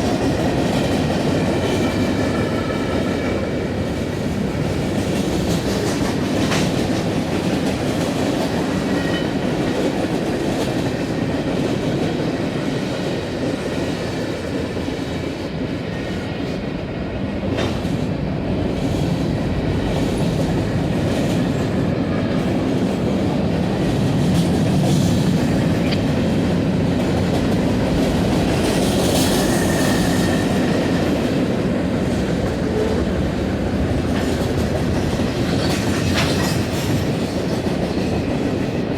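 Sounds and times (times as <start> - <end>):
freight train cars rumbling: 0.0 - 38.9
wheels clacking over rail joints: 32.0 - 38.9.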